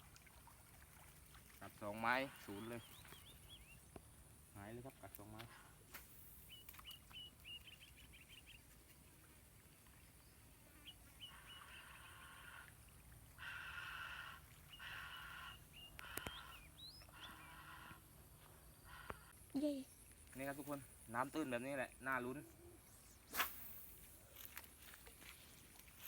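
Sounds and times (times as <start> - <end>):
harsh buzzy bird calls: 2.0 - 3.8, 10.7 - 12.8, 13.4 - 19.4.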